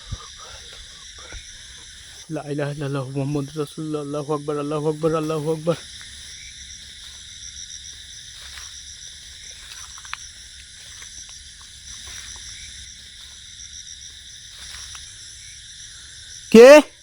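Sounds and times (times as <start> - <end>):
insects chirring: 0.0 - 17.0
faint ticks: 9.6 - 12.5.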